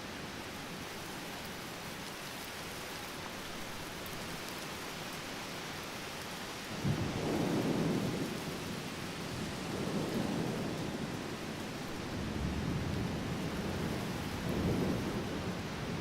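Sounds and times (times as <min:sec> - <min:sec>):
steady rain: 0:00.0 - 0:16.0
thunder rumbling: 0:06.8 - 0:16.0.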